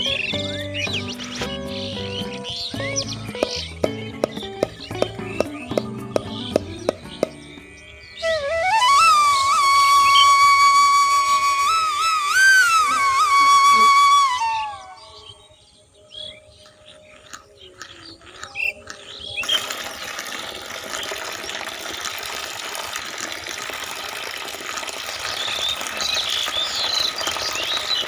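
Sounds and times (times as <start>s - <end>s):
birds chirping: 0.0s - 8.5s, 14.4s - 19.7s, 25.0s - 28.0s
water running and splashing: 3.0s - 7.4s, 19.4s - 28.0s.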